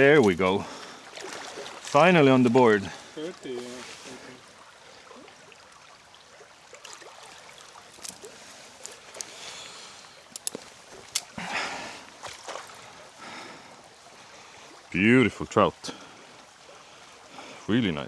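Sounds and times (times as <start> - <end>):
water splash: 0.0 - 4.4, 6.7 - 11.4, 12.0 - 13.0
river water running: 0.0 - 18.0.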